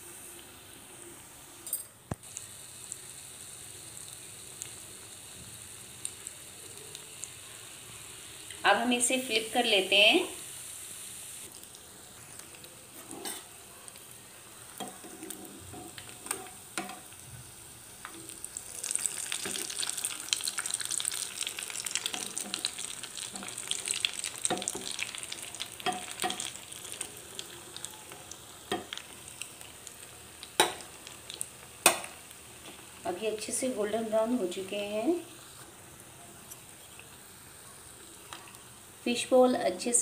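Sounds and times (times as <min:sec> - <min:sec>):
deep-frying bubbling sizzle: 0:00.0 - 0:40.0
spoon stirring in oil: 0:12.4 - 0:14.0, 0:14.7 - 0:17.2, 0:18.0 - 0:27.5.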